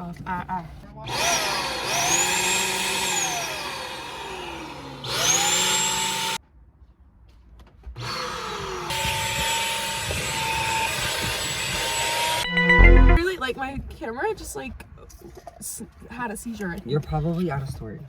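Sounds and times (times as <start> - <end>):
vacuum cleaner running: 1.1 - 6.4.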